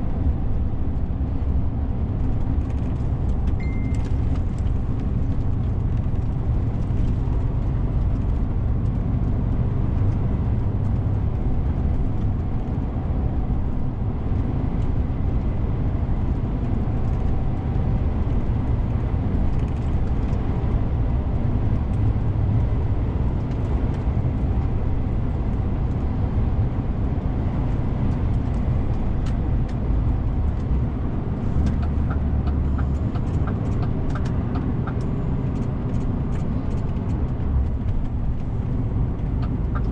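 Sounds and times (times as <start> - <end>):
road noise: 0.0 - 39.9
light ticks: 39.2 - 39.9.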